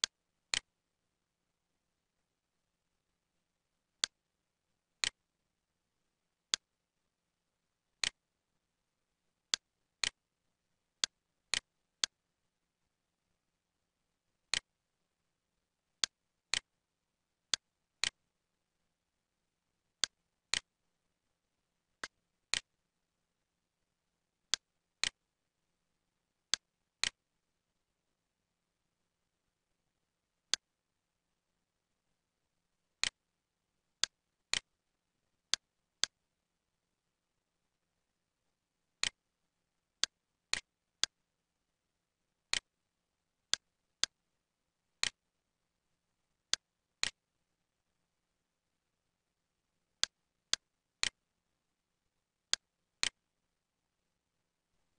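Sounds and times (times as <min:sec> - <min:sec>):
sharp clicks in pairs: 0:17.5 - 0:18.2, 0:26.5 - 0:27.2, 0:45.0 - 0:45.2, 0:46.5 - 0:47.2, 0:52.5 - 0:53.2
computer mouse clicks: 0:46.5 - 0:47.2.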